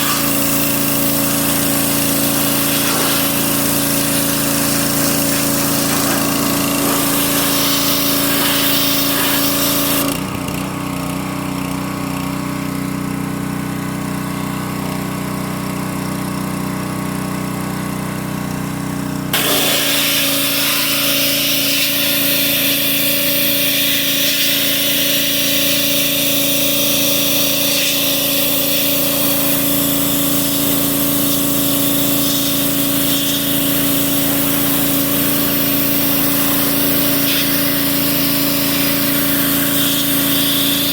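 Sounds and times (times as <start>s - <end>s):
motor humming: 0.0s - 10.1s, 19.4s - 40.9s
high hiss: 1.4s - 9.9s.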